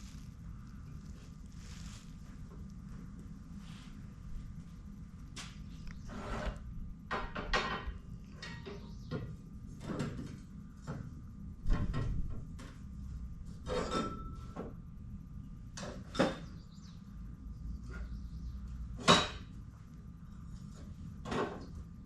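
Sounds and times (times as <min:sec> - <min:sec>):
tools knocking and clattering: 0:07.1 - 0:09.2.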